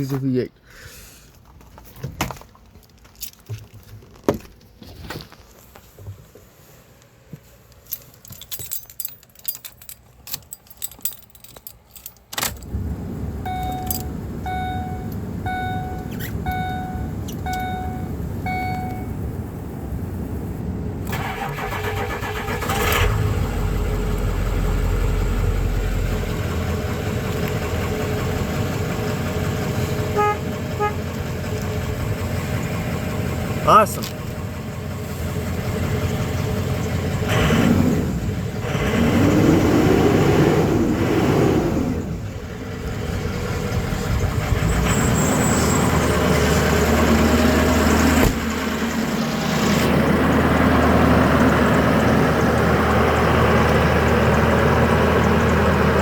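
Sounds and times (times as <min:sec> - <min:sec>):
diesel engine starting and running: 0:05.8 - 0:56.0
keys jangling: 0:07.8 - 0:12.7, 0:13.5 - 0:14.2, 0:17.2 - 0:19.1
clicks: 0:13.5 - 0:19.1
chime beeping: 0:13.5 - 0:19.2.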